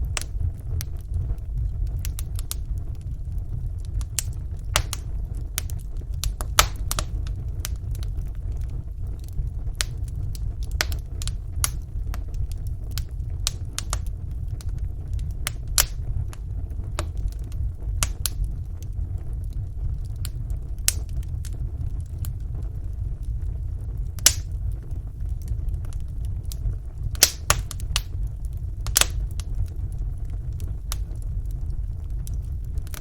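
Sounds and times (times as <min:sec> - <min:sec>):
low rumble of flames: 0:00.0 - 0:33.0
wood fire crackling: 0:00.0 - 0:33.0
loud fire pop: 0:04.1 - 0:07.7, 0:24.2 - 0:25.0, 0:27.0 - 0:29.9.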